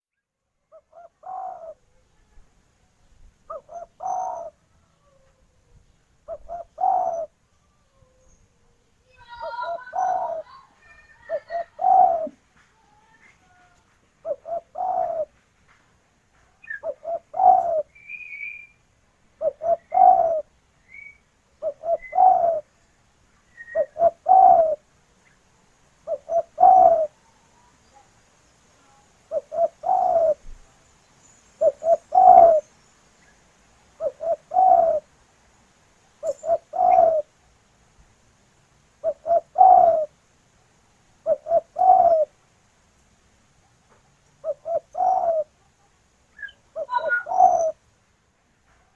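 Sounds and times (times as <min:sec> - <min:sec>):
faint high bird chirps: 0:00.1 - 0:15.3, 0:16.6 - 0:25.4, 0:26.1 - 0:33.4, 0:36.2 - 0:37.3, 0:41.3 - 0:42.3, 0:44.4 - 0:47.8
dove cooing: 0:00.7 - 0:02.0, 0:03.5 - 0:05.3, 0:06.2 - 0:07.4, 0:08.0 - 0:15.4, 0:16.6 - 0:18.7, 0:19.4 - 0:20.5, 0:21.6 - 0:22.7, 0:23.6 - 0:24.8, 0:26.0 - 0:27.3, 0:29.3 - 0:30.6, 0:31.6 - 0:32.7, 0:34.0 - 0:35.1, 0:36.2 - 0:37.4, 0:39.0 - 0:40.2, 0:41.2 - 0:42.3, 0:44.4 - 0:45.7, 0:46.4 - 0:47.8.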